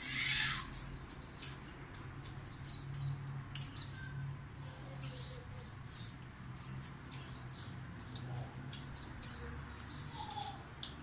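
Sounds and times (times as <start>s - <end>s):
chewing and lip smacking: 4.7s - 11.0s.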